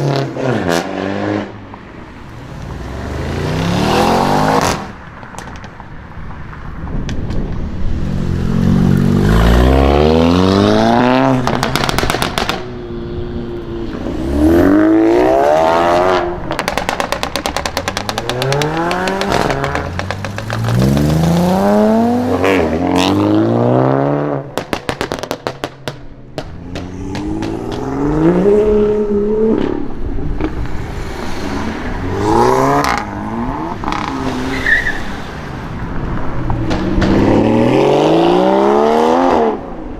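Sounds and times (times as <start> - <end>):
sports cars accelerating hard: 2.3 - 5.0, 8.0 - 12.6, 13.3 - 25.3, 26.4 - 39.9
exhaust crackles and pops: 4.6 - 6.0, 11.3 - 12.8, 16.4 - 21.3, 24.5 - 28.1.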